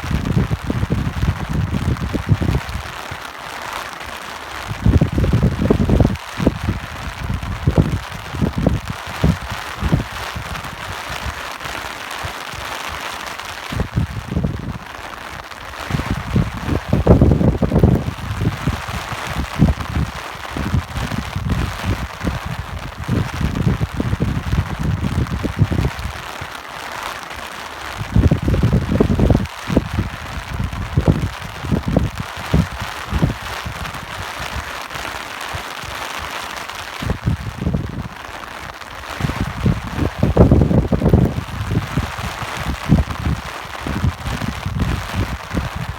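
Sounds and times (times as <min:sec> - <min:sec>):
wind buffeting microphone: 0:00.0 - 0:03.2, 0:04.6 - 0:11.8, 0:12.5 - 0:26.4, 0:27.9 - 0:34.8, 0:36.8 - 0:45.9
steady rain hiss: 0:00.0 - 0:45.9.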